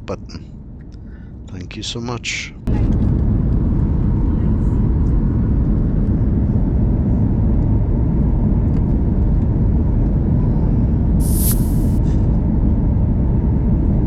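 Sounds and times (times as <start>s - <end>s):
short hiss: 11.2s - 12.0s.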